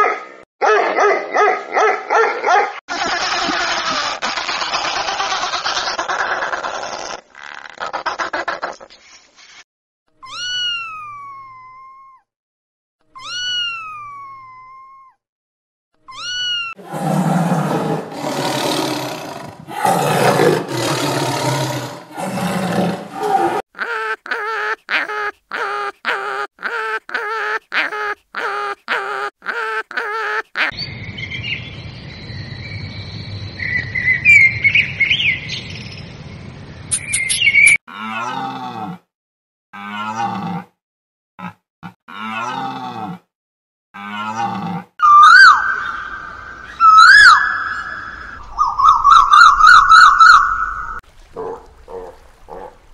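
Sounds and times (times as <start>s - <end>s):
high chirping: 36.9s - 37.8s
animal calls: 44.0s - 52.8s.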